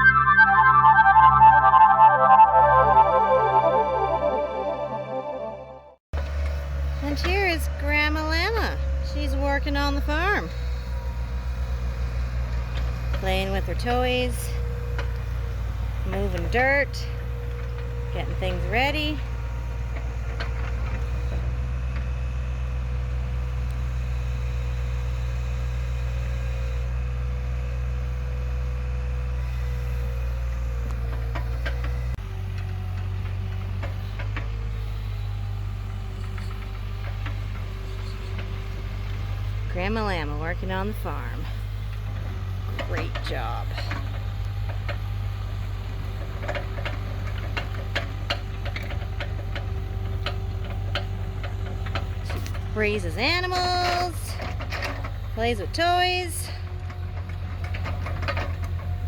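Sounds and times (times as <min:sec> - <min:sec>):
excavator diesel engine droning: 0:00.0 - 0:59.0.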